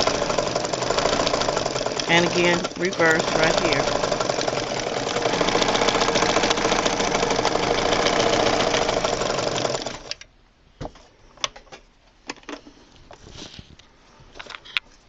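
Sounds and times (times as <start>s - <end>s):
sewing machine stitching: 0.0s - 10.2s.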